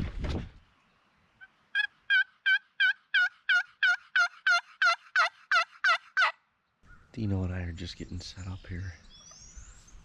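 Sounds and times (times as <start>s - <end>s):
wild turkey yelping: 1.7s - 7.1s.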